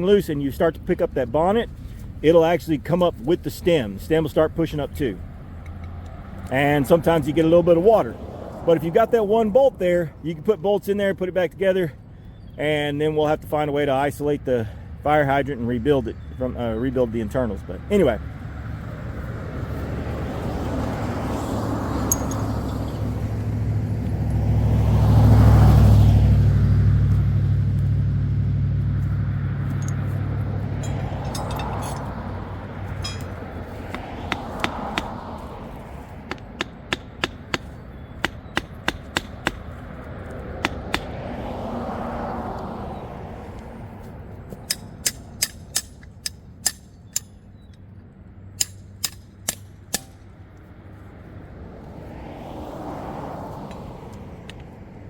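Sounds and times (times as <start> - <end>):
vehicle engine running: 22.0 - 35.1
metallic clicks of hand tools: 22.1 - 22.4, 44.6 - 47.8, 48.6 - 50.2.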